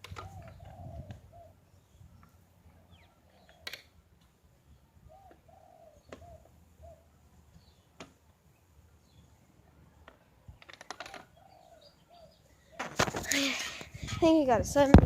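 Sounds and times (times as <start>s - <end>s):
dove cooing: 0.0s - 1.6s, 5.1s - 7.1s, 10.9s - 13.1s.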